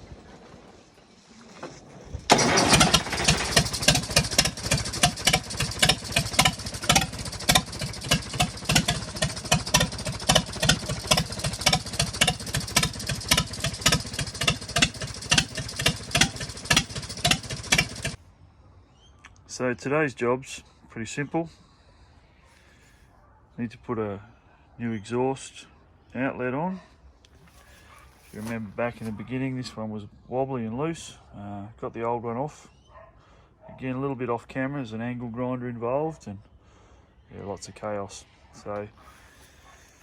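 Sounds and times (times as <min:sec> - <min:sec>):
diesel tractor engine starting and running: 0:00.0 - 0:18.2.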